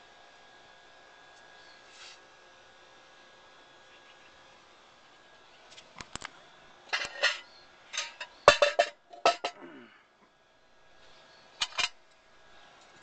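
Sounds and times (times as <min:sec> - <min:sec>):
metal clanking and rattling: 0:08.0 - 0:09.6, 0:11.6 - 0:12.0.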